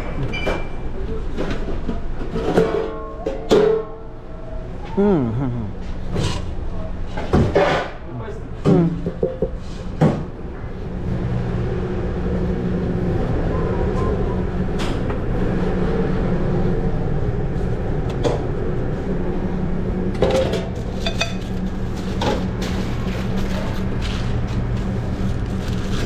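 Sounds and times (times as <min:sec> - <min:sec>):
low equipment hum: 0:00.0 - 0:26.0
clatter of pans and utensils: 0:01.4 - 0:03.9, 0:20.2 - 0:24.2.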